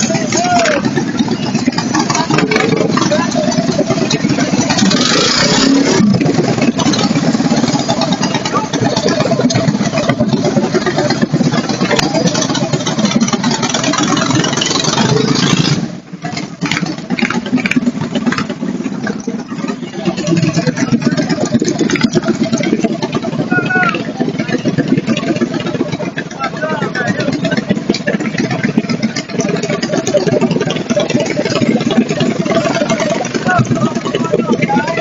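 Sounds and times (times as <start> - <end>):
minibike engine running rough: 0.0 - 35.0.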